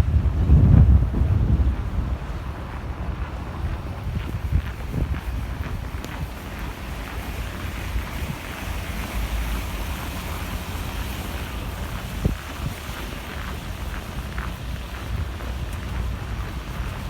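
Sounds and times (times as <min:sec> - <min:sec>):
snowstorm wind hiss: 0:00.0 - 0:17.0
wind buffeting microphone: 0:00.0 - 0:17.0.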